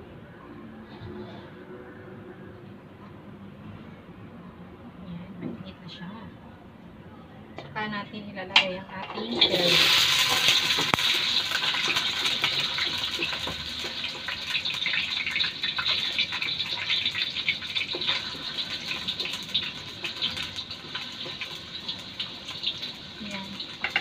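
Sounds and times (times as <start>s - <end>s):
carrots sizzling in hot oil: 9.2s - 24.0s.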